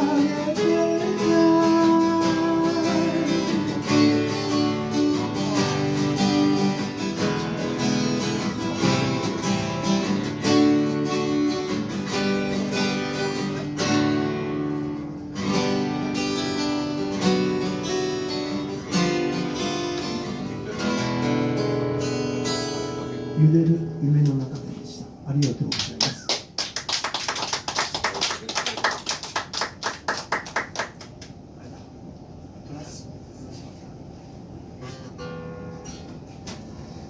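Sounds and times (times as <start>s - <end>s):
acoustic guitar strumming chords: 0.0s - 25.0s, 34.8s - 37.0s.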